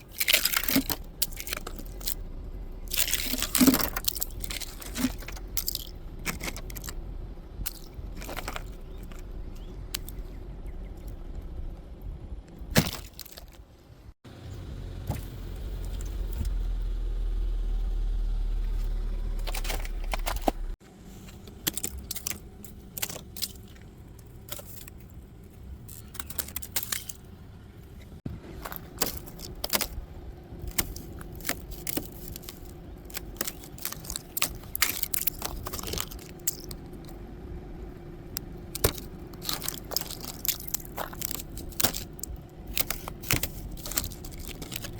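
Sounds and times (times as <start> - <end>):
ice cracking and scraping: 0.0 - 2.2, 2.8 - 7.0, 7.6 - 9.3, 12.7 - 13.7, 19.4 - 27.3, 28.5 - 37.2, 38.7 - 44.9
low rumble: 0.0 - 12.7.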